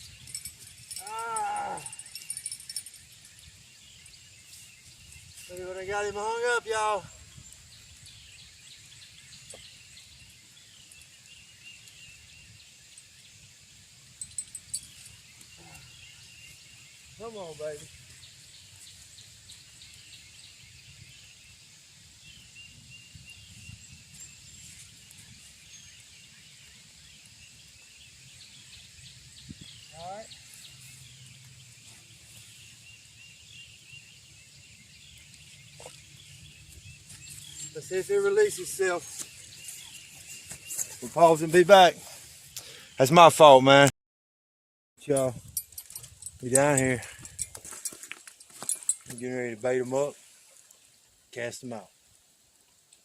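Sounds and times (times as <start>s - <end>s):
insect chorus trilling: 0.0s - 10.8s
insect trill: 0.0s - 40.1s
insect chirps: 0.0s - 43.1s.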